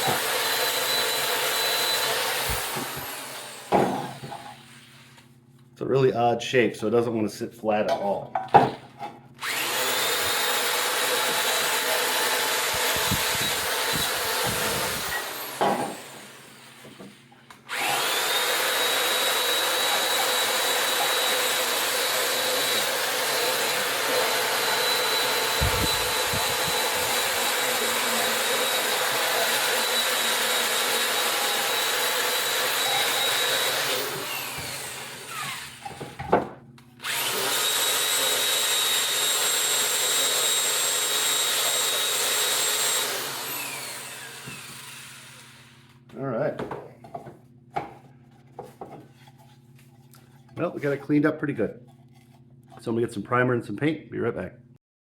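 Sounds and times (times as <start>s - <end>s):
wire brush power tool whining: 0.0s - 4.4s, 9.4s - 16.9s, 17.7s - 36.2s, 37.0s - 45.9s.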